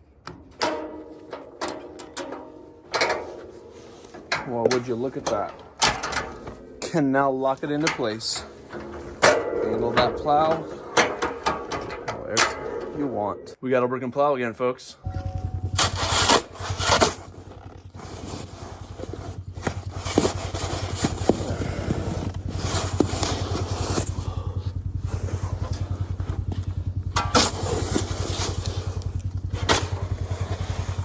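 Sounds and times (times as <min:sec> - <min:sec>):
atv engine running: 0:00.2 - 0:13.4, 0:15.0 - 0:31.0.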